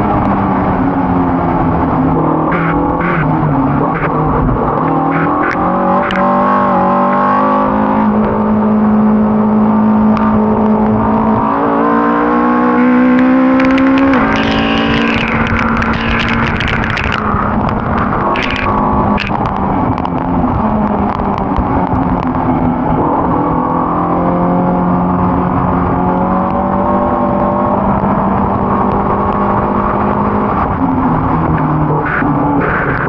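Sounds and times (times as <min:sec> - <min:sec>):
race car engine running hard: 0:00.0 - 0:33.0
sharp clicks: 0:03.9 - 0:06.3, 0:13.0 - 0:20.2.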